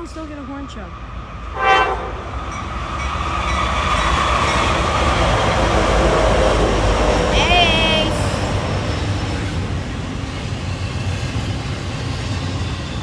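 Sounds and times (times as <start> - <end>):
freight train running past: 0.0 - 13.0
loud train horn blast: 1.5 - 2.3.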